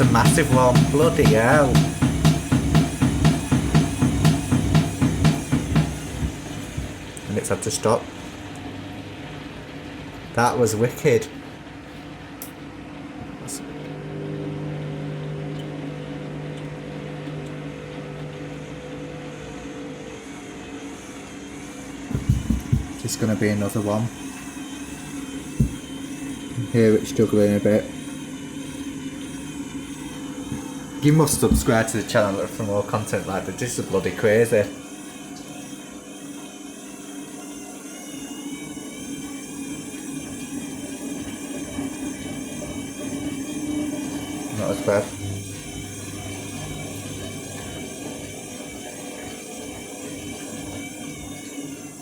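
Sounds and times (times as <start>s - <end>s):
washing machine motor hum: 0.0s - 52.0s.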